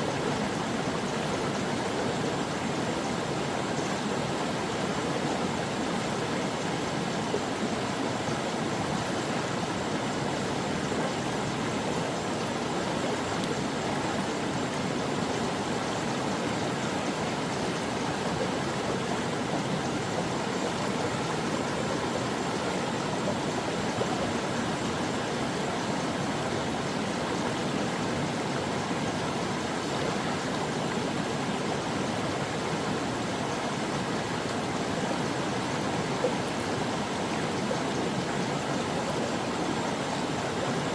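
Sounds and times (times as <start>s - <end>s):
brook flowing: 0.0s - 40.9s.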